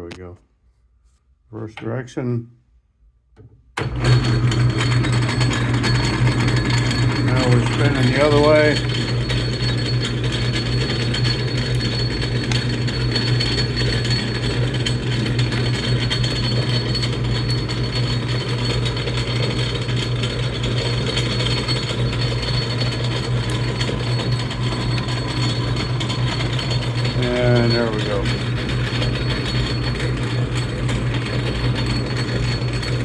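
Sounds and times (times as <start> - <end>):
metal lathe humming with whine: 3.8 - 33.0.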